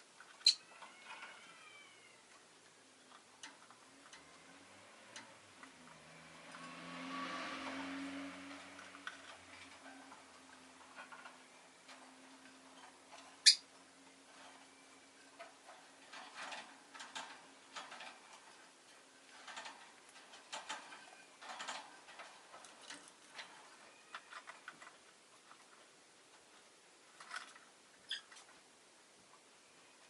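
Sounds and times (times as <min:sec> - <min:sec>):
high bird chirp: 0:13.4 - 0:13.6.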